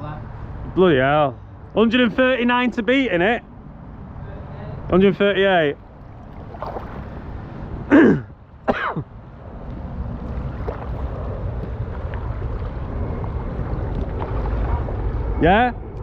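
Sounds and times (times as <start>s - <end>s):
river water rushing: 5.8s - 8.7s
wind on microphone: 5.8s - 16.0s.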